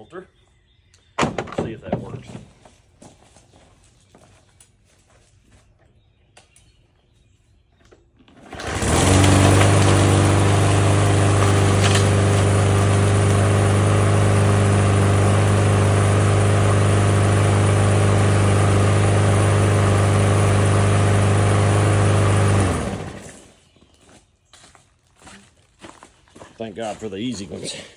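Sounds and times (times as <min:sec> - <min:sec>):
lawnmower engine starting and running: 0:08.2 - 0:23.7.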